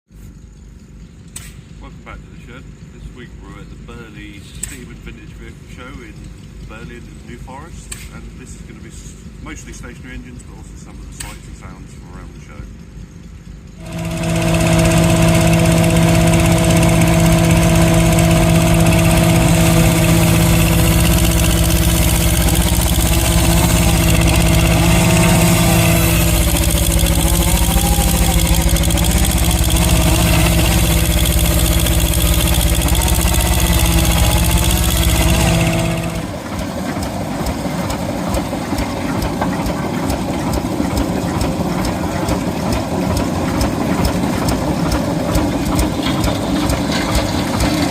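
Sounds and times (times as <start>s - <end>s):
engine droning: 0.2s - 47.9s
engine clattering: 0.3s - 47.9s.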